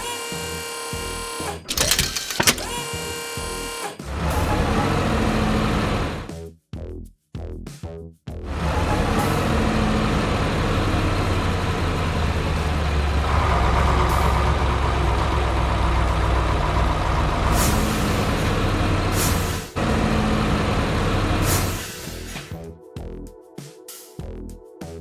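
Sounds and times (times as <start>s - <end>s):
diesel truck engine running: 1.7s - 2.8s, 4.2s - 6.3s, 8.5s - 22.5s
air brake hisses: 17.4s - 19.8s, 21.4s - 22.5s.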